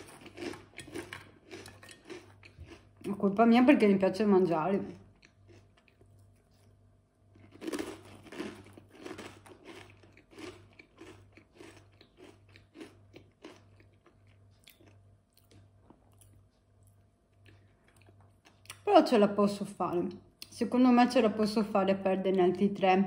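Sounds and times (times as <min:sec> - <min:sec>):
crunchy snack chip chewing: 0:00.0 - 0:02.9, 0:07.3 - 0:16.4.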